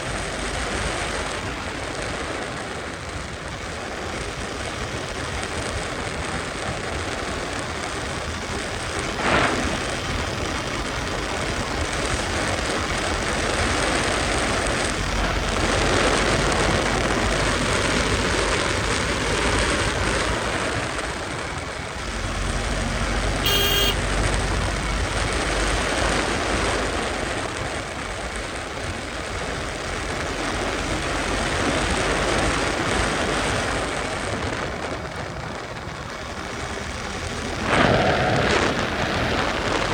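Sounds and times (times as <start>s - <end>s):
wind and road noise rushing: 0.0s - 39.9s
motorcycle engine running: 21.7s - 34.0s
short horn blast: 23.4s - 24.4s.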